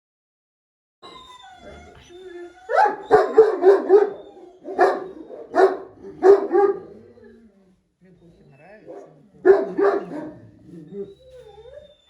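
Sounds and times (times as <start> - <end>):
dog barking: 2.7 - 7.0, 8.9 - 10.6.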